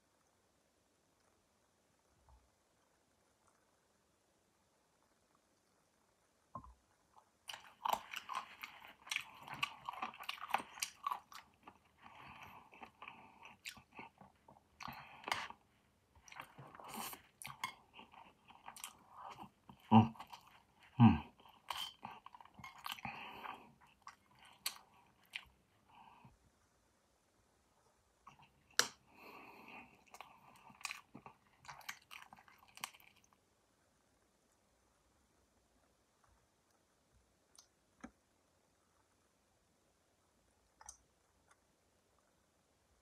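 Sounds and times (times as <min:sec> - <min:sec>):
person chewing with wet clicks: 0:07.0 - 0:25.9, 0:28.2 - 0:33.4, 0:37.5 - 0:38.2.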